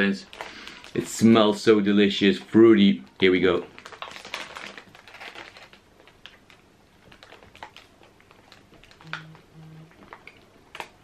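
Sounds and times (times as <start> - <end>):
man humming mm: 9.0 - 10.0.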